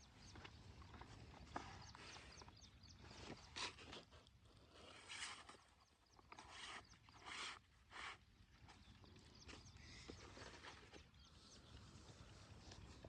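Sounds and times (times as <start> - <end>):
faint bird chirps: 0.0 - 4.0, 4.9 - 13.0
rustling or scraping: 3.1 - 8.8.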